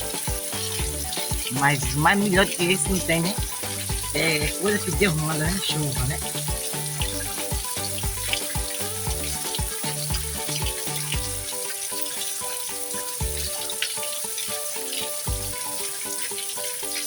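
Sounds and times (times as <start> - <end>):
bass beat: 0.0 - 11.5, 13.2 - 13.6, 15.3 - 15.6
music with held notes: 0.0 - 17.0
rain hiss: 0.0 - 17.0.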